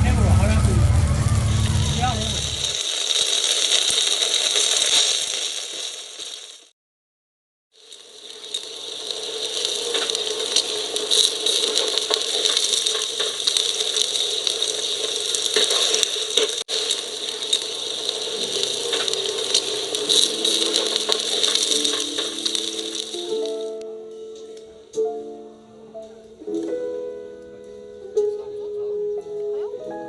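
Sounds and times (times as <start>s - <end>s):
crackles and pops: 0.0s - 6.7s, 7.7s - 25.1s
food sizzling in a pan: 0.0s - 6.7s, 7.8s - 23.8s
soft music: 18.2s - 30.0s.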